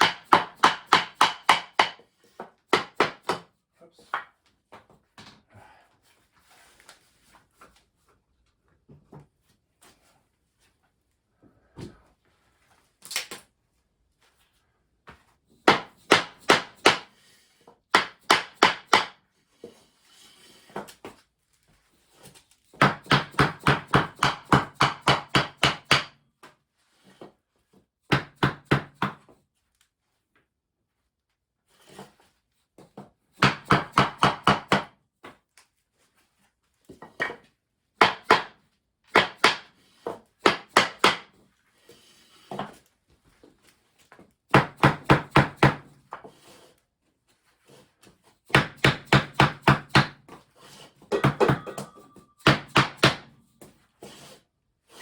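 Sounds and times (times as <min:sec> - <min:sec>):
hammer blows on wood panels: 0:00.0 - 0:04.3, 0:15.6 - 0:17.2, 0:17.9 - 0:19.2, 0:22.7 - 0:26.2, 0:28.1 - 0:29.3, 0:33.3 - 0:34.9, 0:38.0 - 0:41.4, 0:44.5 - 0:46.3, 0:48.4 - 0:50.4, 0:51.1 - 0:53.8.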